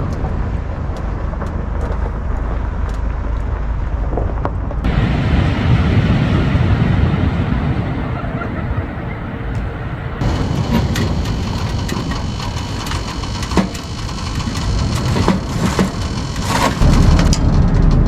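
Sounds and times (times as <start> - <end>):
low rushing fire noise: 4.8 - 18.0
firewood crackling: 4.9 - 17.4.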